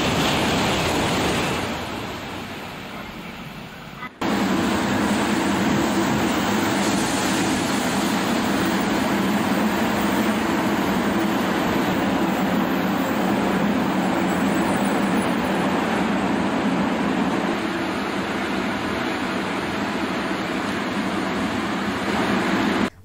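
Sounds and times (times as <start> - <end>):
bullet train passing: 0.0 - 22.9.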